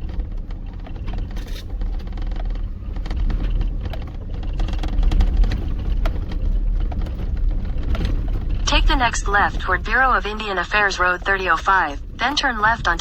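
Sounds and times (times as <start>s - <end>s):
knocks and rattles from bumps: 0.0s - 8.7s
vehicle engine and tyres rumbling: 0.0s - 13.0s.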